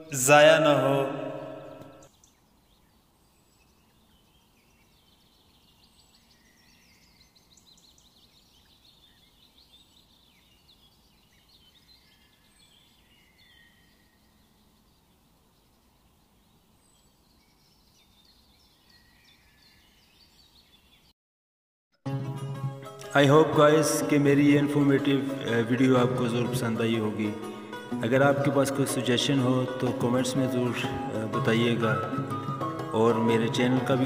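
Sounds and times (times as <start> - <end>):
low steady background hiss: 0.0 - 21.0
small birds chirping: 1.8 - 21.1.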